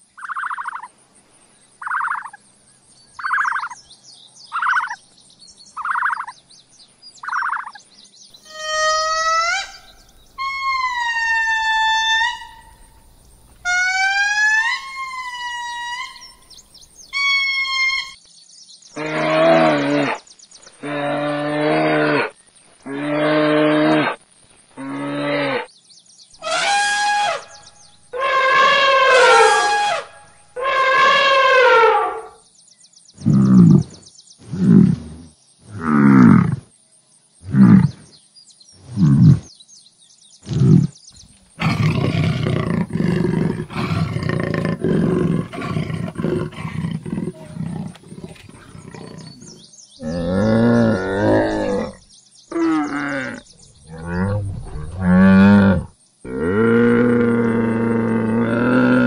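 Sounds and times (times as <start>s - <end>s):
elephant trumpeting: 8.4s - 18.2s, 26.4s - 32.4s, 41.6s - 52.0s
short falling animal calls: 8.4s - 18.2s, 26.4s - 32.3s, 41.6s - 52.0s
camel groaning: 33.2s - 36.7s, 37.5s - 38.0s, 38.8s - 39.5s, 40.5s - 59.0s.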